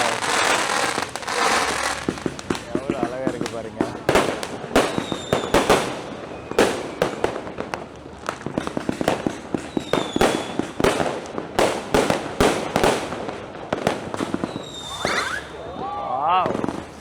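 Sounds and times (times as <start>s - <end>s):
fireworks and firecrackers banging: 0.0s - 17.0s
falling firework whistles: 4.8s - 7.6s, 8.6s - 10.9s, 14.1s - 16.9s.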